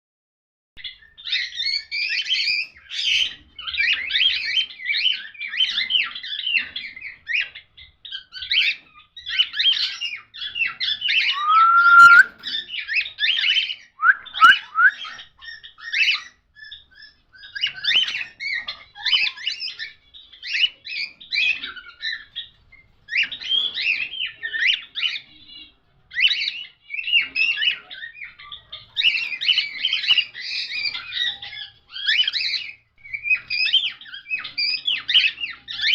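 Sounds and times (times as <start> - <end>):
cockatiels chirping and chattering: 0.8 - 35.9
bird rising whistle: 11.3 - 12.3, 14.0 - 15.0.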